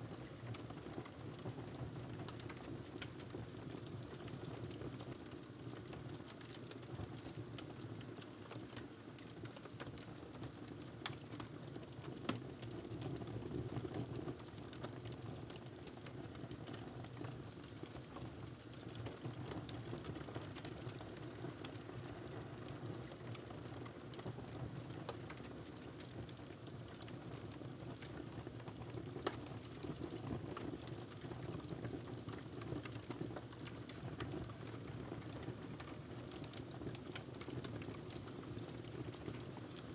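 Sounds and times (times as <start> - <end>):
wood fire crackling: 14.4 - 39.9.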